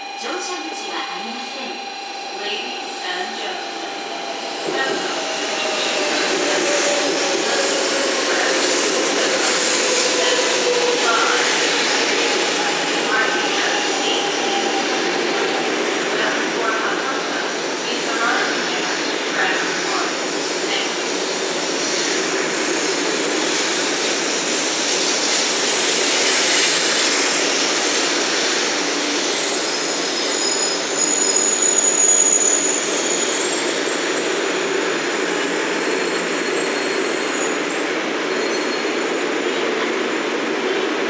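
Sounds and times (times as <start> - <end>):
train running noise: 0.0 - 41.0
high-pitched brake squeals: 28.6 - 39.9.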